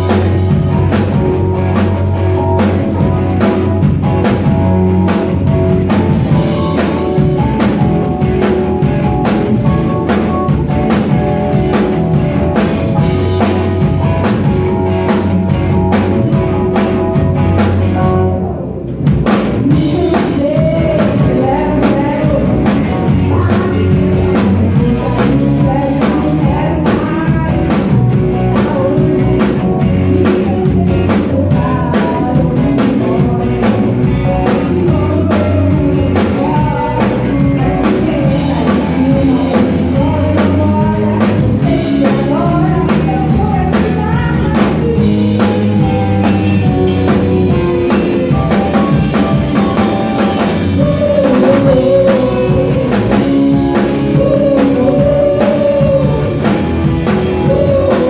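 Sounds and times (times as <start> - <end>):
live rock band playing: 0.0 - 58.0
person singing: 19.6 - 58.0.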